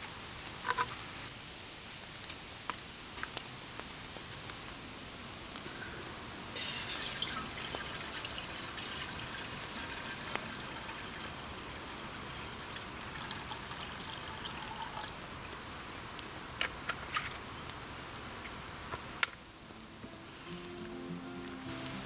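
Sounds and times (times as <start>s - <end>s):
water pouring into a pot: 6.4s - 16.2s.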